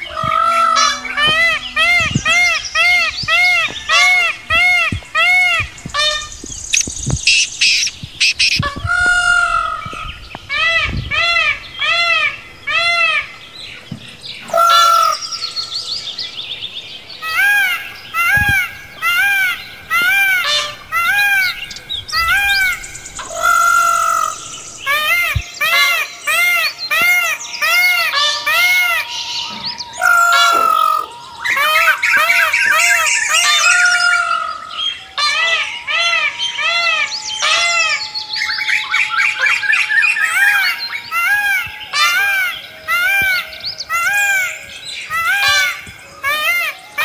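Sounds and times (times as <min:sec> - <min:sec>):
birds chirping: 0:00.0 - 0:47.0.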